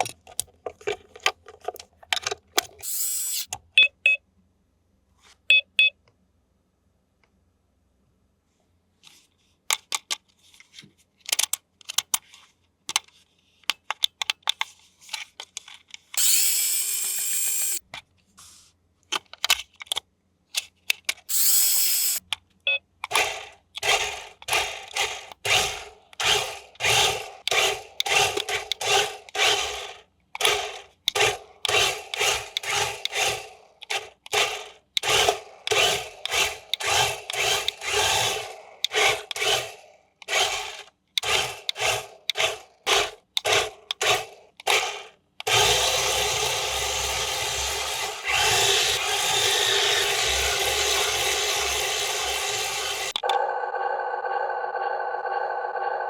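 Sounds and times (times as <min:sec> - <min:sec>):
small electric motor whirring: 0:02.8 - 0:03.5, 0:16.2 - 0:17.8, 0:21.3 - 0:22.2, 0:23.2 - 0:43.1, 0:44.0 - 0:56.0.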